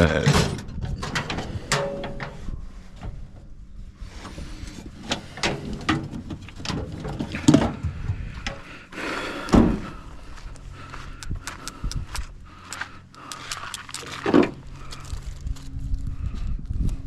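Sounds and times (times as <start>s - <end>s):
knocks and clunks: 5.0s - 8.7s, 9.4s - 10.0s
loud thuds: 9.5s - 10.0s.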